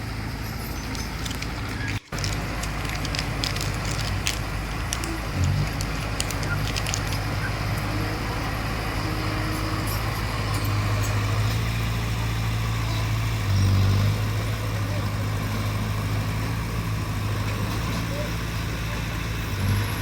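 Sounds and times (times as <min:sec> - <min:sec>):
bulldozer diesel engine droning: 0:00.0 - 0:20.0
sharp clicks and cracks: 0:00.8 - 0:07.5.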